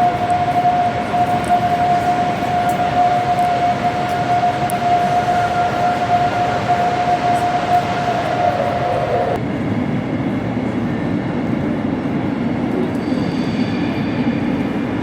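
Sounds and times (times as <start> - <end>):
steady high tone: 0.0 - 9.4
train rumbling: 0.0 - 15.0.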